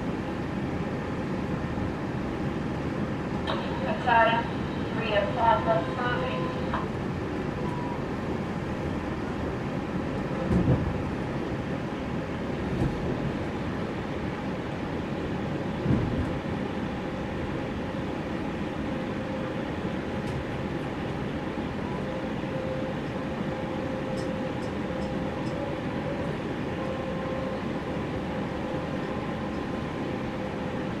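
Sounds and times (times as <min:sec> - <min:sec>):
train carriage rumble: 0:00.0 - 0:31.0
faint steady hum: 0:03.4 - 0:08.2
knocks from train carriage: 0:10.5 - 0:11.0, 0:12.8 - 0:13.0, 0:15.8 - 0:16.3.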